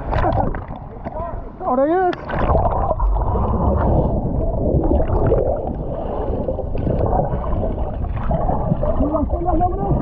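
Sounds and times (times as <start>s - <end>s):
seawater sloshing and gurgling: 2.2s - 10.0s.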